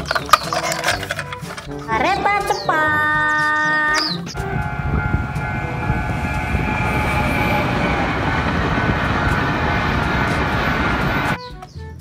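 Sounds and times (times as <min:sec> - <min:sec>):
train wheels rumbling on rails: 0:04.3 - 0:11.4.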